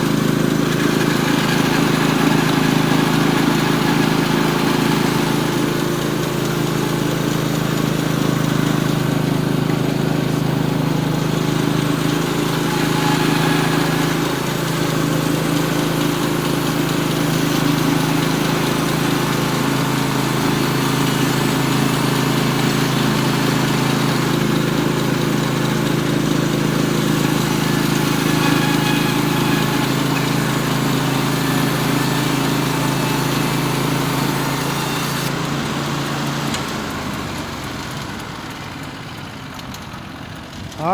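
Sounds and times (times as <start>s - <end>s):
band blade cutting log: 0.0s - 35.3s
sawmill engine running under load: 0.0s - 40.9s.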